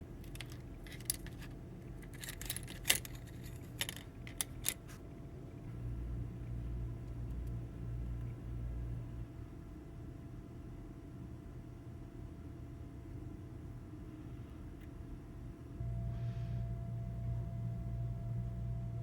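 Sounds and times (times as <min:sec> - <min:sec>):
low steady hum: 0:00.0 - 0:19.0
light metallic clicks and clinks: 0:00.2 - 0:04.8.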